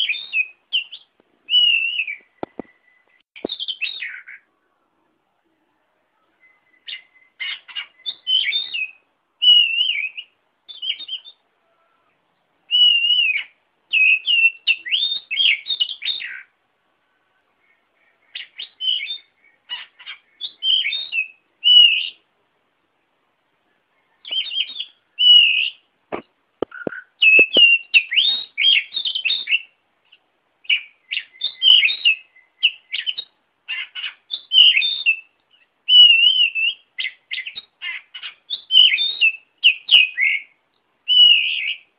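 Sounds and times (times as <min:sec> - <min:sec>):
songbird chirps and whistles: 0:00.0 - 0:22.3, 0:23.6 - 0:41.9
sharp clicks: 0:26.1 - 0:27.7.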